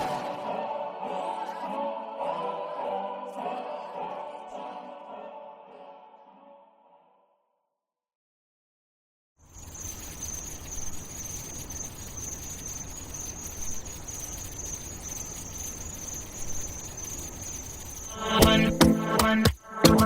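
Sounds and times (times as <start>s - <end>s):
crickets chirping: 9.4s - 20.0s
loud pop music: 18.3s - 20.0s.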